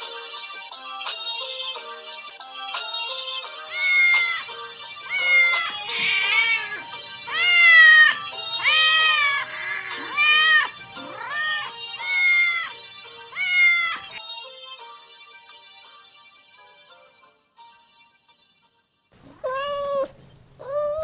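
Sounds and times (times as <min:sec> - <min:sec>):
background music: 0:00.0 - 0:19.2
cat meowing: 0:03.7 - 0:14.1, 0:19.2 - 0:21.0.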